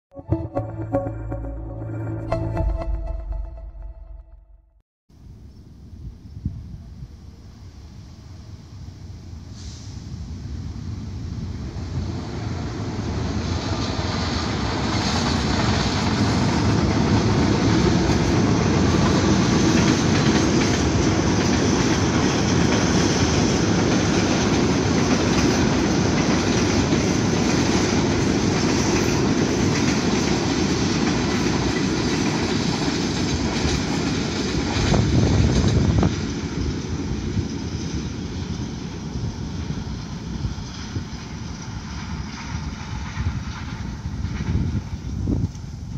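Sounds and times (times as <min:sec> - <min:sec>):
loud low rumble: 0:00.2 - 0:04.8
diesel passenger train passing: 0:07.6 - 0:45.9.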